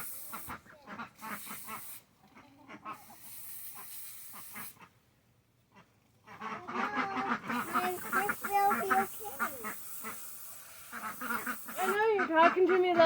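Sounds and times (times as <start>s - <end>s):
hissing noise: 0.0s - 2.1s, 3.0s - 4.8s, 7.4s - 12.2s
ducks quacking: 0.0s - 5.0s, 5.7s - 13.0s.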